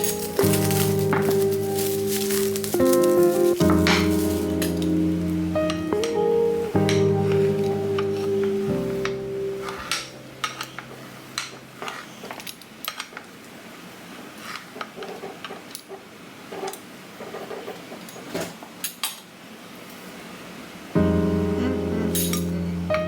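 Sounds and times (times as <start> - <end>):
cutlery and dishes clinking: 0.0 - 5.0, 22.2 - 22.5.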